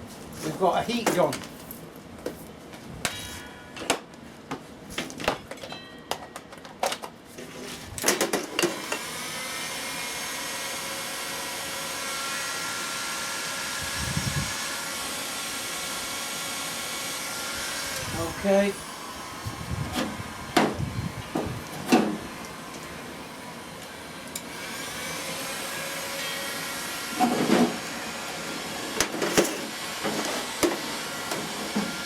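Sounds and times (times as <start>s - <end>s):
heat gun fan hissing: 8.8s - 32.0s.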